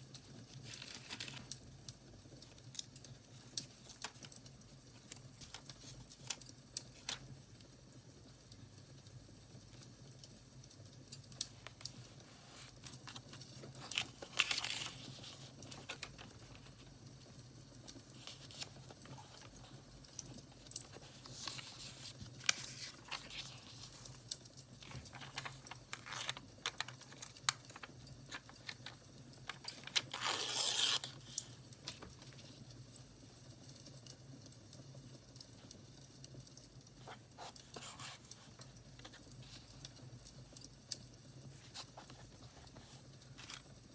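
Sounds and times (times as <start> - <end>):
paper crackling and rustling: 0.1 - 7.4, 11.3 - 17.0, 17.8 - 32.8, 37.0 - 40.0, 41.4 - 43.9
paper tearing: 29.5 - 31.6.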